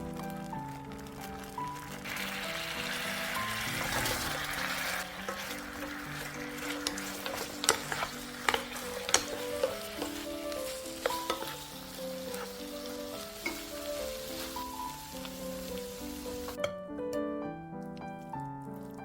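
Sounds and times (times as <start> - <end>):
tofu sizzling in a frying pan: 0.0 - 16.6
background music: 0.0 - 19.0
utensil clicking against pan: 3.8 - 13.8.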